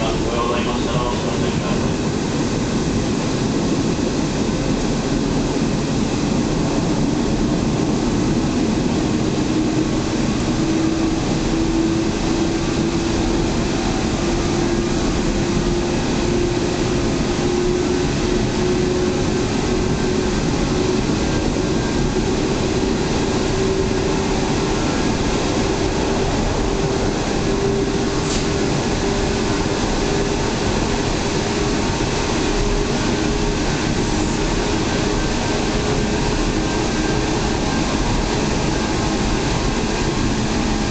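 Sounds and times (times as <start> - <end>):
train wheels rumbling on rail: 0.0 - 40.9.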